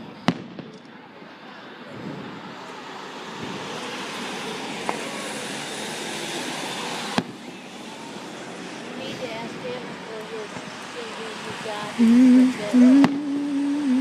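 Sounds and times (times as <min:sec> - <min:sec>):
firework crack: 0:00.0 - 0:02.6, 0:03.3 - 0:08.9
firework bang: 0:00.2 - 0:00.9.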